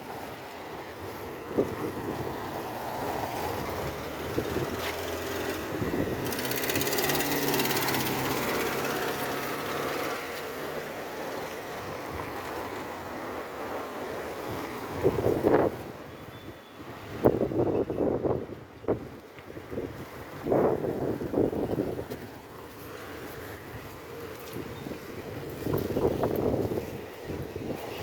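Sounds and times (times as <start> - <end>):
wind noise on microphone: 0.7 - 10.3, 14.3 - 28.0
vehicle engine passing: 2.6 - 10.8.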